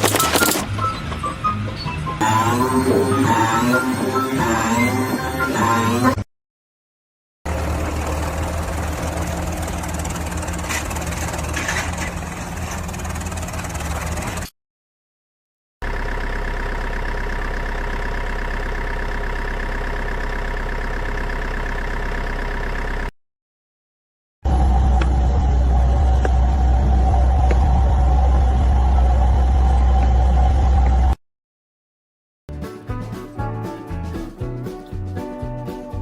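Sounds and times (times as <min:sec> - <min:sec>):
brief mechanical clatters: 0:00.0 - 0:00.9
machinery drone: 0:00.0 - 0:06.2, 0:24.5 - 0:31.2.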